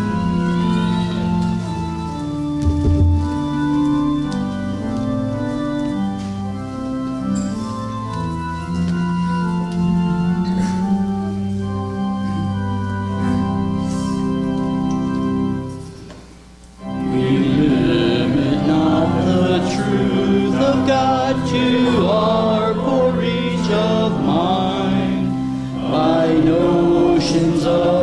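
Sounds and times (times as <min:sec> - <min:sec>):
congregation singing a hymn: 0:00.0 - 0:15.8, 0:16.8 - 0:28.0
organ chords: 0:00.0 - 0:28.0.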